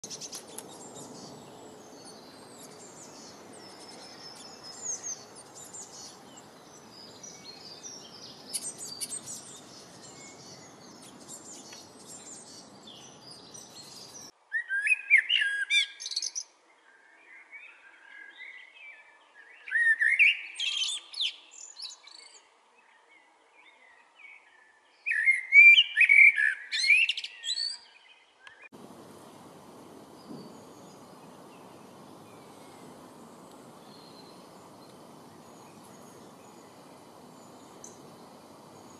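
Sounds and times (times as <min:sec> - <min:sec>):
blackbird singing fluting phrases: 0:00.0 - 0:16.4, 0:25.1 - 0:38.9
high bird chirps: 0:00.0 - 0:16.4
faint background hiss: 0:00.0 - 0:19.5, 0:27.5 - 0:38.9.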